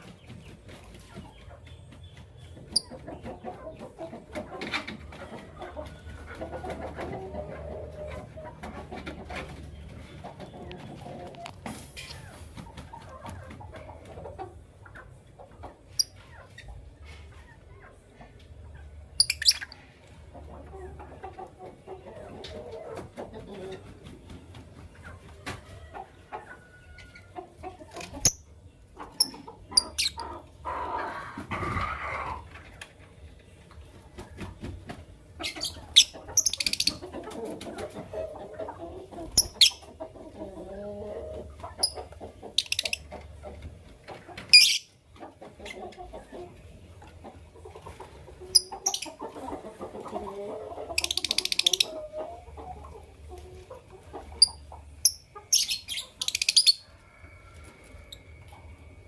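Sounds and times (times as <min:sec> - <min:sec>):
birds clucking: 0:00.0 - 0:59.0
lovebirds chirping shrilly: 0:19.2 - 0:19.8, 0:35.4 - 0:37.0, 0:44.6 - 0:44.9, 0:54.4 - 0:56.9.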